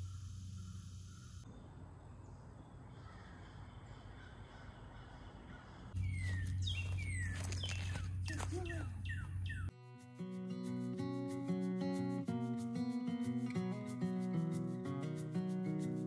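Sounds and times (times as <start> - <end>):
faint outdoor background noise: 0.0 - 11.6.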